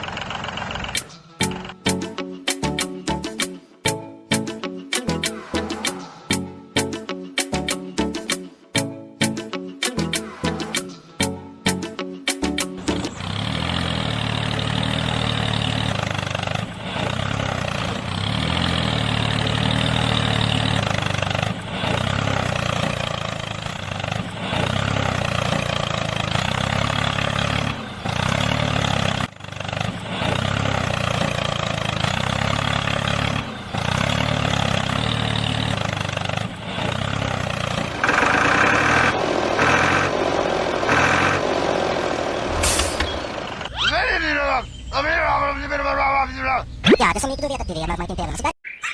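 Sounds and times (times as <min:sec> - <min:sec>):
small tractor engine running: 0:00.0 - 0:02.9, 0:12.4 - 0:43.9.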